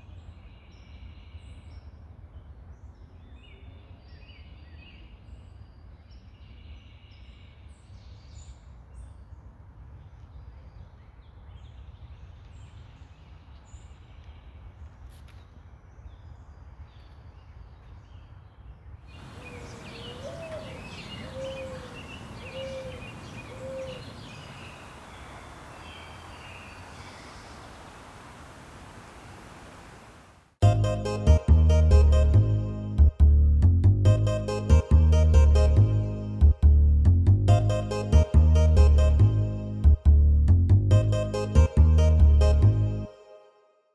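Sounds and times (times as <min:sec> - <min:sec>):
songbirds chirping and singing: 0:19.1 - 0:30.2
mourning dove cooing: 0:19.2 - 0:30.2.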